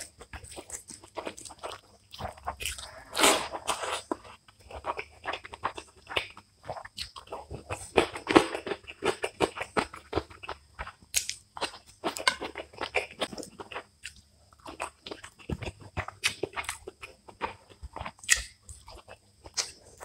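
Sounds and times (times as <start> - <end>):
chewing and wet mouth clicks: 8.8 - 19.8.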